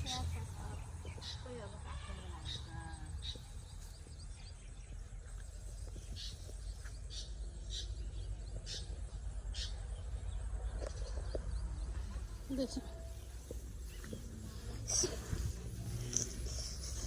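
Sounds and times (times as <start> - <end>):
insects chirping: 0.0 - 7.4, 12.1 - 17.0
steady low rumble: 0.0 - 17.0.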